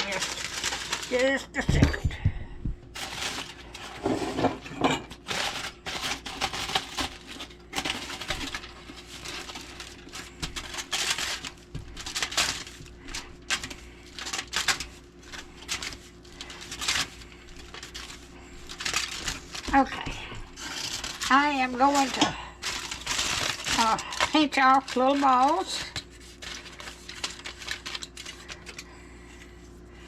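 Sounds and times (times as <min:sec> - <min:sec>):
dishes and utensils clinking: 0:04.0 - 0:05.2.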